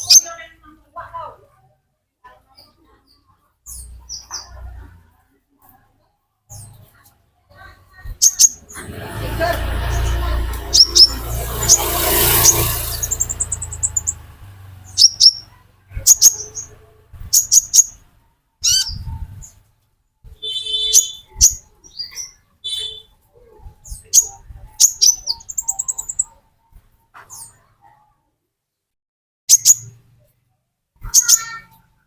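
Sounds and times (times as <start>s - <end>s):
bird chirping and trilling: 0.0s - 0.4s, 2.6s - 4.7s, 7.8s - 19.6s, 20.4s - 23.2s, 23.8s - 26.4s, 29.5s - 30.0s, 31.0s - 32.0s.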